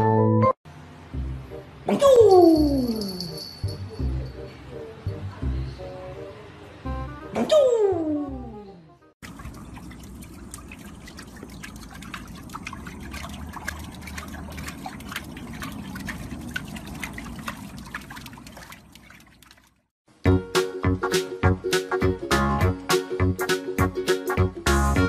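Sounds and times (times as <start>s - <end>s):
dog splashing in water: 9.2s - 19.9s.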